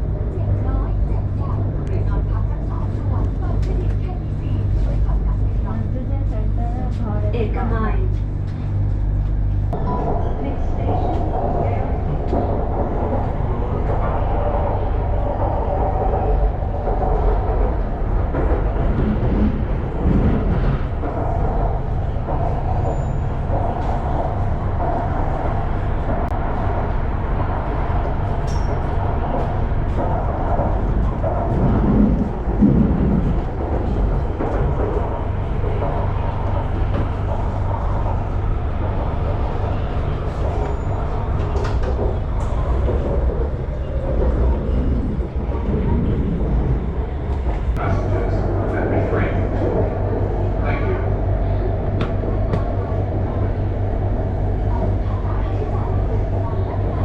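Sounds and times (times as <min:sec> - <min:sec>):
train wheels and motors rumbling: 0:00.0 - 0:57.0
faint voices: 0:27.2 - 0:57.0.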